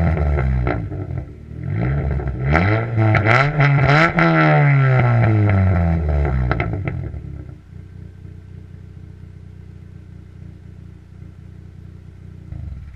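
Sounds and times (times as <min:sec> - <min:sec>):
exhaust pops: 0:00.0 - 0:07.7, 0:12.3 - 0:12.9
car engine revving down and idling: 0:00.0 - 0:12.9.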